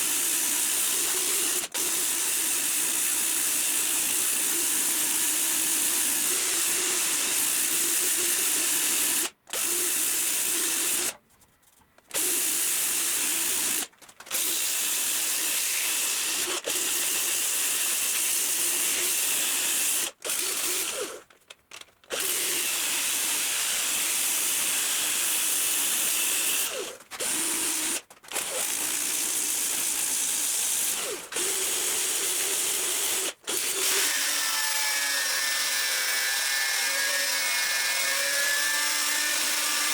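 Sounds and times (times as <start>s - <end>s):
small power tool grinding: 20.0s - 39.9s.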